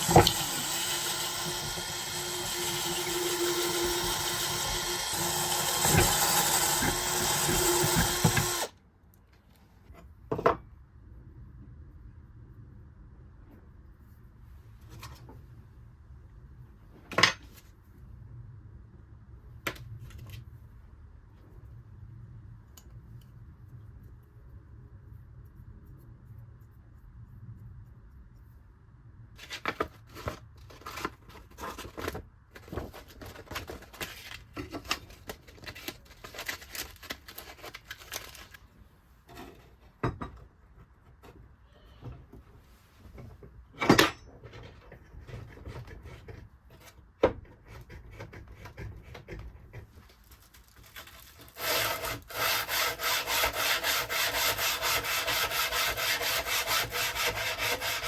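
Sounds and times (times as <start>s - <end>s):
rubbing and scraping strokes: 50.0s - 58.0s.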